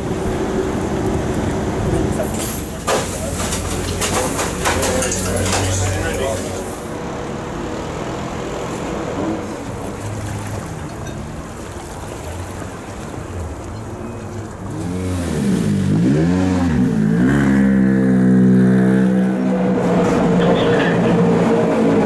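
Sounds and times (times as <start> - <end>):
rally car engine revving: 14.7 - 22.0.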